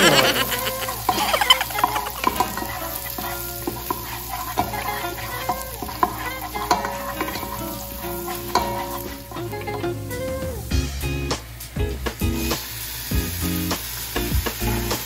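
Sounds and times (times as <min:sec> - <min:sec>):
garlic and onion sizzling in oil: 0:00.0 - 0:15.0
wooden spatula scraping a pot: 0:00.1 - 0:08.9.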